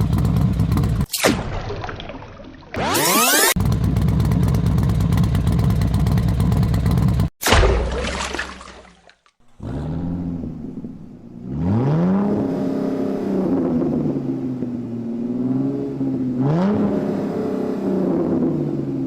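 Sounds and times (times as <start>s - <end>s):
vehicle engine revving: 9.5s - 19.0s.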